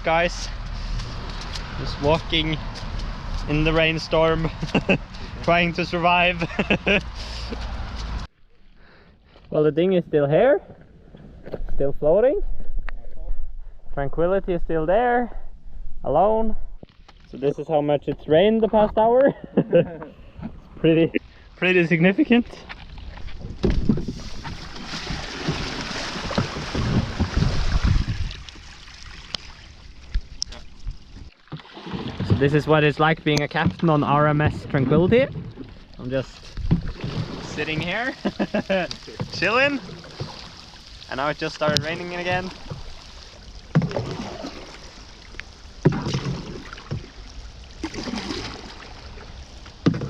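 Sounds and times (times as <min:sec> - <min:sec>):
splashing water: 0:22.6 - 0:50.0
wind buffeting microphone: 0:23.1 - 0:28.6
dull knocks: 0:33.4 - 0:35.8
rain falling on water: 0:37.4 - 0:49.8.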